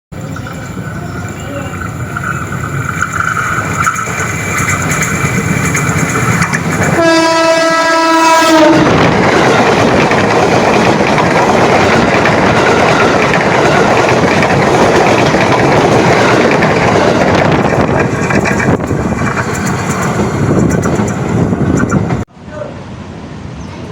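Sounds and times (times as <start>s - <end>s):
train passing rush: 0.1s - 23.9s
train horn: 6.9s - 9.0s.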